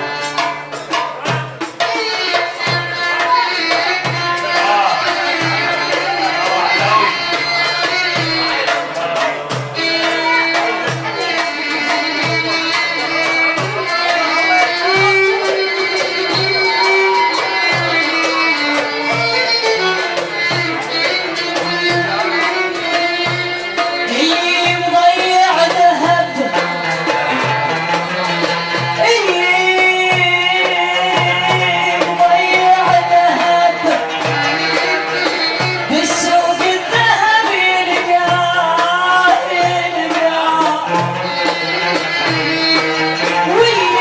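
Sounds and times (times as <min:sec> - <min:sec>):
folk ensemble playing: 0:00.0 - 0:44.0
hand drum beat: 0:00.0 - 0:44.0
woman singing: 0:01.8 - 0:08.8, 0:21.1 - 0:27.2, 0:28.6 - 0:44.0.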